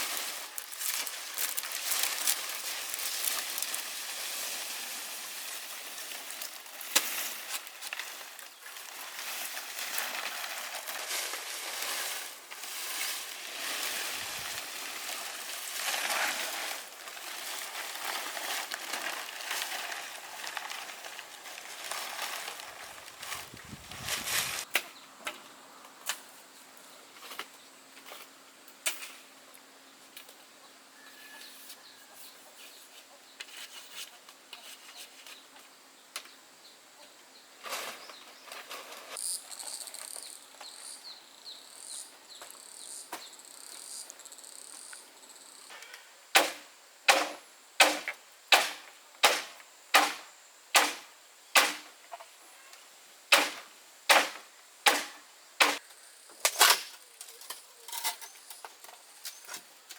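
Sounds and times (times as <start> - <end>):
hand tool striking wood: 46.4 - 50.2.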